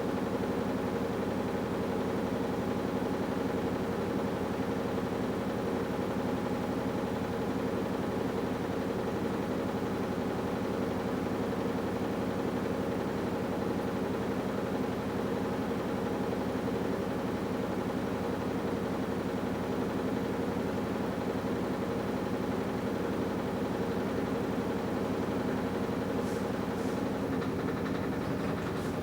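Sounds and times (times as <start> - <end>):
washing machine motor humming: 24.4 - 29.0.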